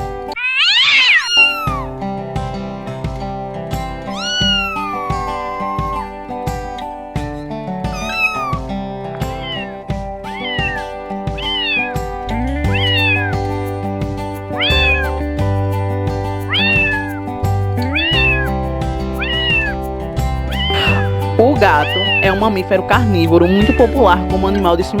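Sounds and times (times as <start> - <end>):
cat meowing: 0.3 - 1.9, 4.1 - 6.1, 7.9 - 13.5, 14.5 - 15.3, 16.4 - 22.4, 23.4 - 24.3
background music with bass line: 1.7 - 25.0.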